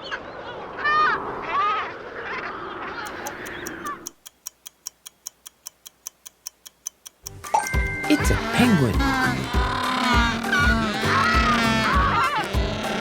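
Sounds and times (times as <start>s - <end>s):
countdown timer ticking: 3.1s - 13.0s
penguin braying calls: 8.3s - 13.0s.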